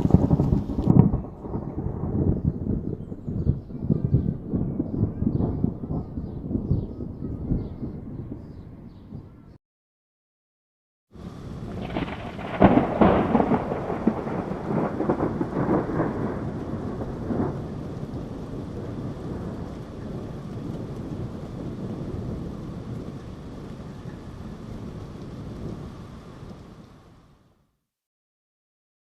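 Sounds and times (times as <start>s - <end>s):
rain hissing: 0.0s - 2.8s, 11.2s - 27.6s
thunder crack and rumble: 0.0s - 9.4s, 11.2s - 27.4s.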